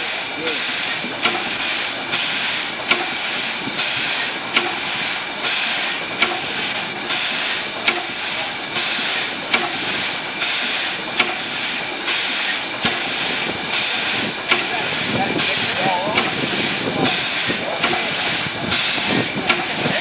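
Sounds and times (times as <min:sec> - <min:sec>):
steam traction engine chuffing: 0:00.0 - 0:20.0.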